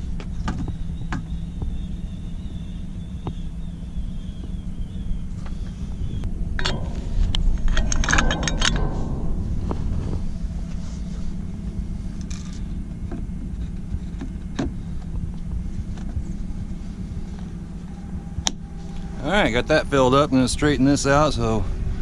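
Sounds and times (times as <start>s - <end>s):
vehicle engine idling: 0.0s - 22.0s
metallic clinks and rattles: 6.5s - 11.6s.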